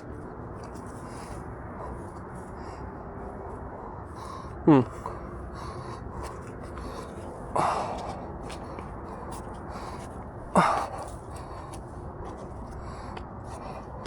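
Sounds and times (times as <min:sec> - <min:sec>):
person gasping breaths: 0:03.6 - 0:12.0, 0:12.7 - 0:14.0.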